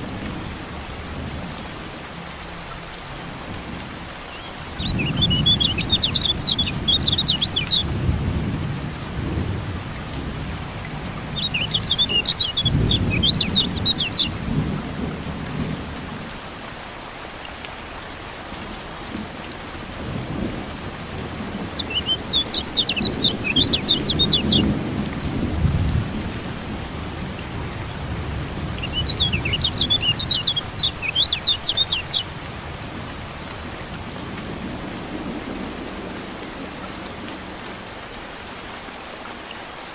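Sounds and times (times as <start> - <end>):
steady rain: 0.0 - 39.9
bird high twittering: 4.4 - 7.9, 11.4 - 14.4, 21.5 - 24.6, 28.8 - 32.3.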